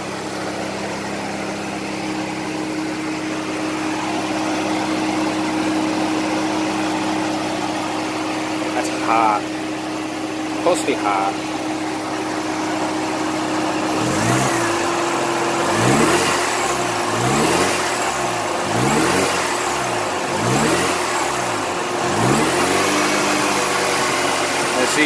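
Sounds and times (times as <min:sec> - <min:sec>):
steady whine: 0:00.0 - 0:25.0
rotary engine revving: 0:11.0 - 0:25.0.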